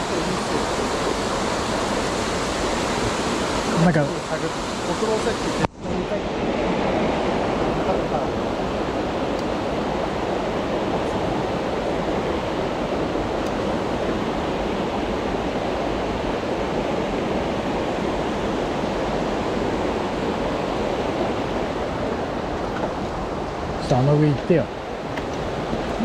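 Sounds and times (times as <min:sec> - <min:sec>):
mountain stream water running: 0:00.0 - 0:26.0.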